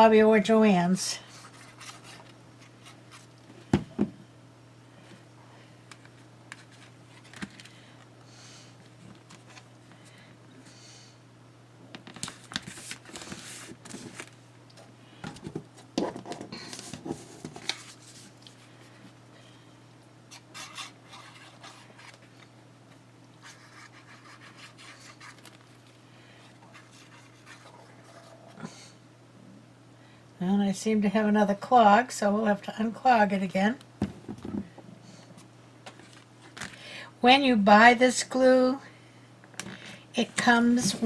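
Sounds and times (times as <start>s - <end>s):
steady low hum: 0.0s - 41.0s
paper being rubbed and scratched: 23.4s - 25.4s.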